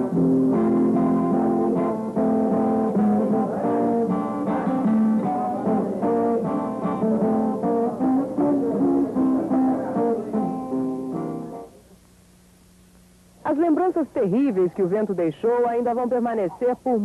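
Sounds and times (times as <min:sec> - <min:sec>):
guitar plucking and strumming: 0:00.0 - 0:11.8.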